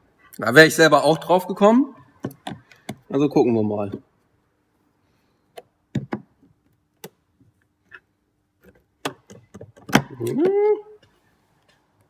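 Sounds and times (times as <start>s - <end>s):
tool prying at plastic: 5.9s - 6.4s, 8.6s - 10.4s.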